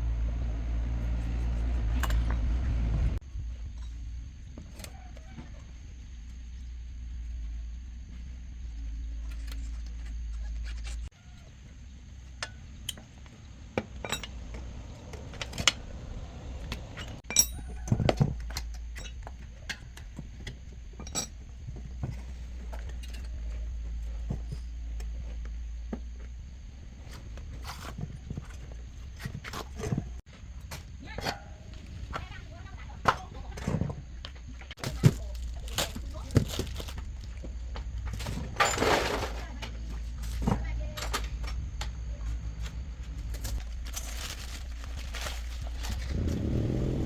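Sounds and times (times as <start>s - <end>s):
steady low hum: 0.0s - 47.0s
metallic clinks and knocks: 13.8s - 15.8s, 16.7s - 24.8s.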